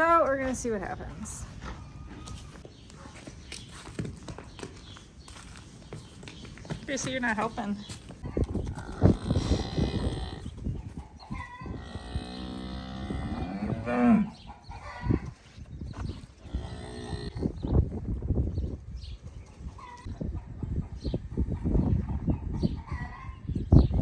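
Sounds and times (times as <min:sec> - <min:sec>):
cattle mooing: 0:11.7 - 0:14.4.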